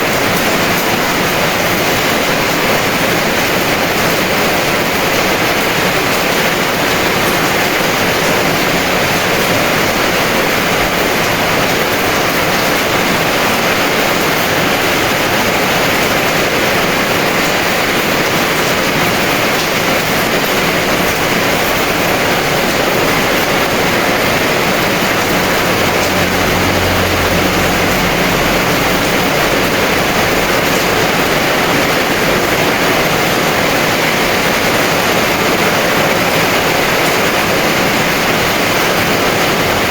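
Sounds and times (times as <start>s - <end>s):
heavy rain hissing: 0.0s - 39.9s
faint low rumble: 24.7s - 31.6s.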